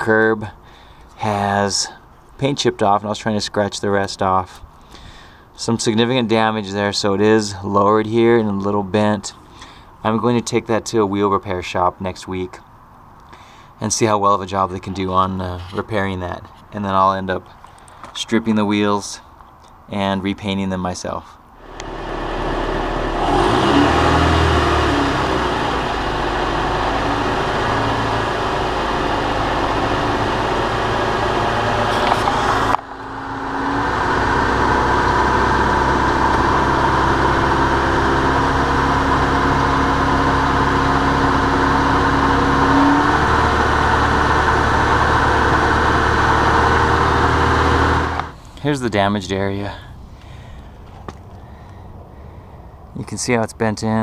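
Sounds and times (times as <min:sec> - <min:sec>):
car engine running: 0:21.6 - 0:48.4.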